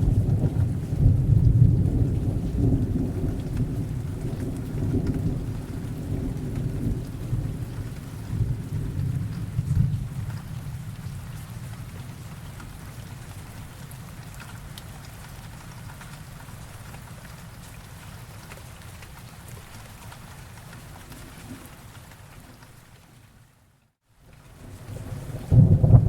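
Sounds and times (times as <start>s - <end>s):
deep roll of thunder: 0.0s - 12.3s, 24.6s - 26.0s
steady rain: 0.0s - 26.0s.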